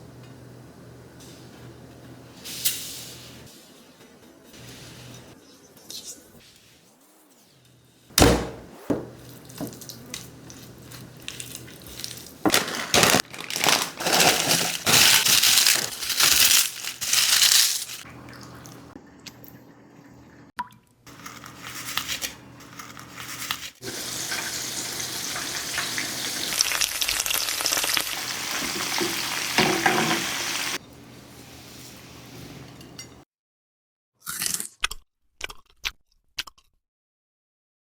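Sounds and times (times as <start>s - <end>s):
chicken frying in hot oil: 23.6s - 30.8s
hissing and splashing: 23.8s - 30.8s.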